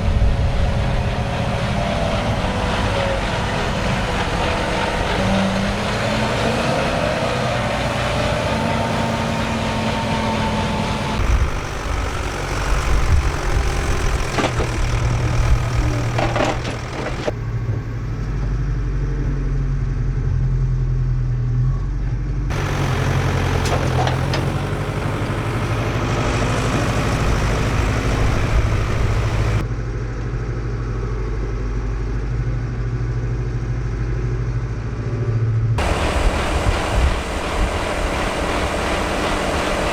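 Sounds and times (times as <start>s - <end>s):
diesel engines running: 0.0s - 19.2s, 22.2s - 29.8s, 35.8s - 39.9s.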